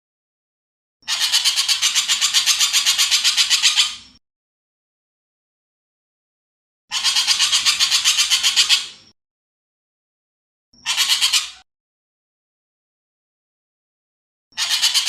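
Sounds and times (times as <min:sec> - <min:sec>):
bird rattling call: 0:01.1 - 0:04.0, 0:06.9 - 0:09.0, 0:10.8 - 0:11.6, 0:14.6 - 0:15.0.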